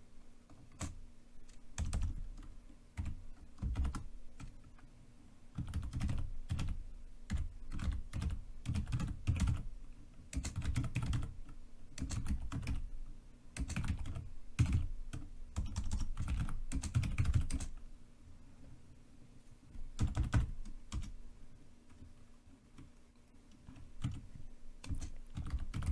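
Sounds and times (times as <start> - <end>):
typing on computer keyboard: 0.5 - 4.6, 5.5 - 9.7, 10.3 - 12.9, 13.6 - 17.8, 19.9 - 21.2, 23.6 - 25.9.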